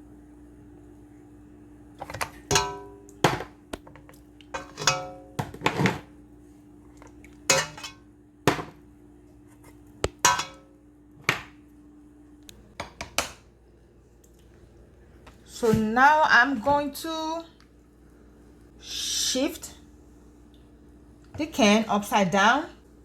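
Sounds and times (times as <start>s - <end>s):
metal cans clanking against pot: 2.0s - 6.1s, 7.5s - 8.7s, 10.0s - 10.7s.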